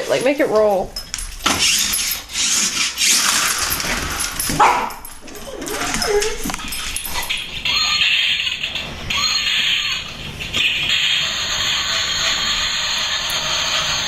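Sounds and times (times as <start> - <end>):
dog barking and whining: 4.4 - 8.5.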